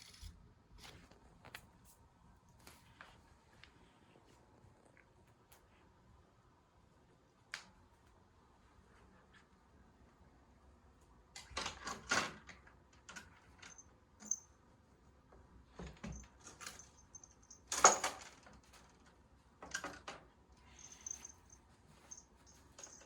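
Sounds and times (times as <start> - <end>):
cat toy rustles and clatters: 15.8 - 23.0.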